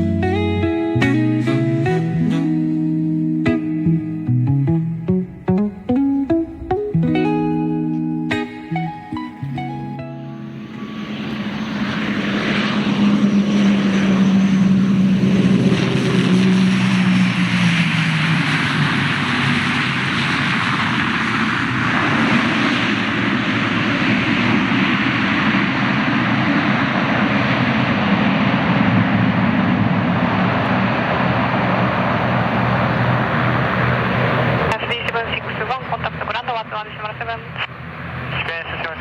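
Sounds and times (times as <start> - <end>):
airliner engines passing: 0.0 - 39.0.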